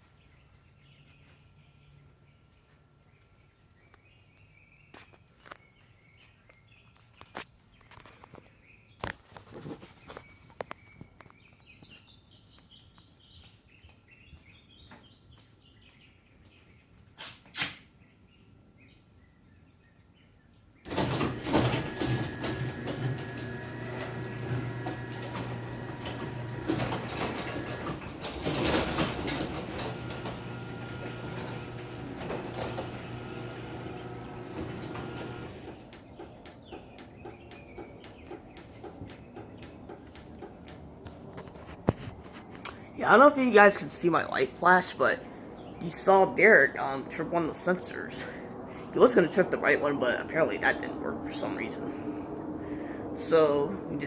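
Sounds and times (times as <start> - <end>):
faint birds chirping: 0.0 - 17.2, 17.8 - 54.0
garage door opener motor hum: 20.9 - 40.6
garage door rattling: 20.9 - 40.7.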